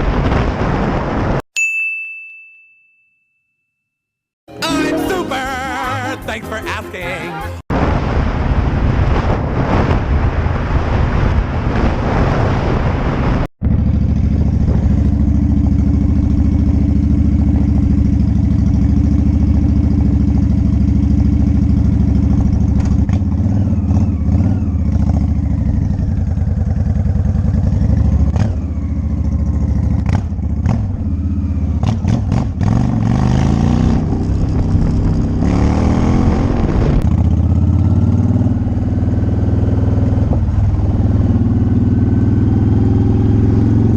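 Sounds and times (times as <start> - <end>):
music: 4.5 - 7.6
motorcycle engine while riding: 8.1 - 43.9.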